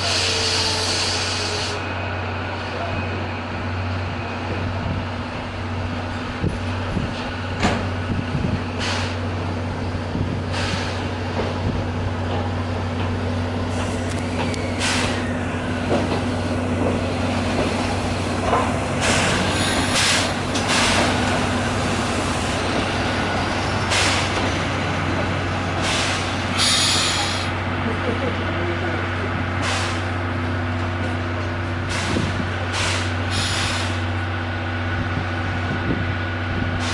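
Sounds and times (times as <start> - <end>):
electric train humming: 0.0 - 36.9
compressed air hisses: 25.8 - 27.5.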